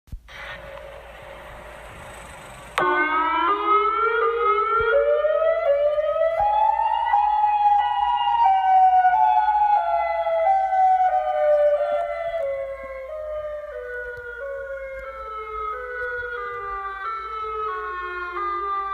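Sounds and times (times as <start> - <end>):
siren-like horn tone: 2.8 - 18.9.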